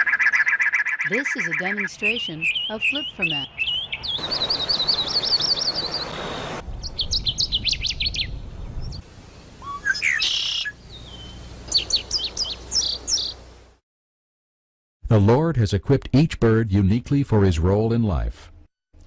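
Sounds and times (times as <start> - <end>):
songbirds calling: 0.0 - 13.7.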